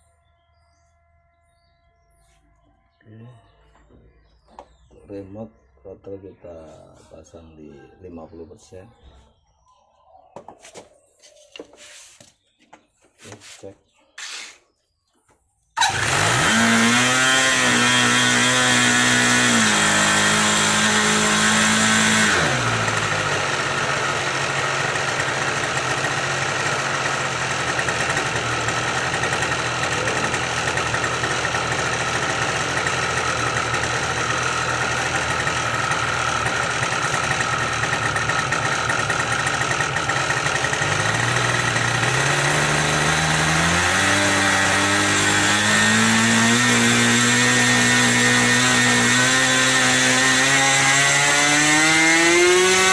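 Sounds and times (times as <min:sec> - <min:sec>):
model airplane engine running: 0:15.8 - 0:52.9.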